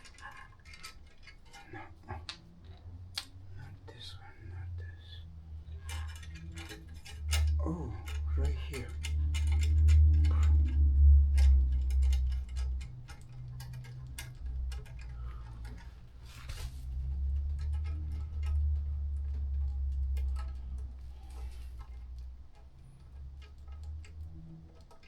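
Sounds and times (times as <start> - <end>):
low rumble: 3.5 - 24.3
ratchet wrench clicking: 5.9 - 16.2.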